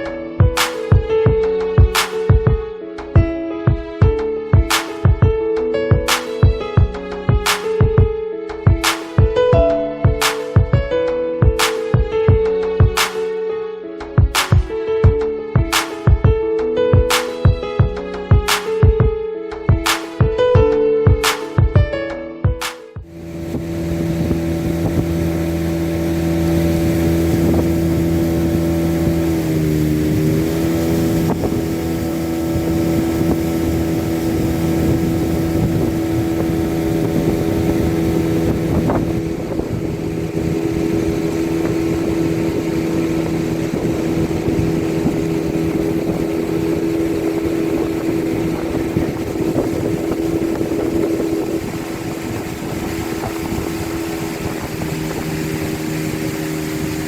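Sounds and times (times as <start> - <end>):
water noise: 0.0 - 8.0, 8.6 - 13.4, 23.0 - 57.0
motorboat engine running: 0.0 - 13.2, 23.0 - 57.0
wind: 23.2 - 57.0.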